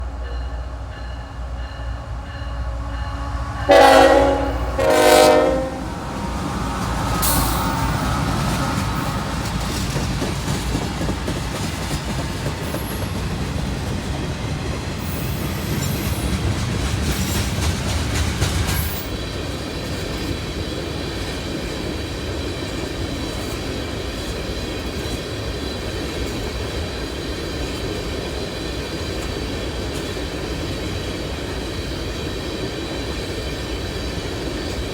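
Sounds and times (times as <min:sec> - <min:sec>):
freight train rumbling past: 0:00.0 - 0:34.9
locomotive horn blasts: 0:03.1 - 0:06.1.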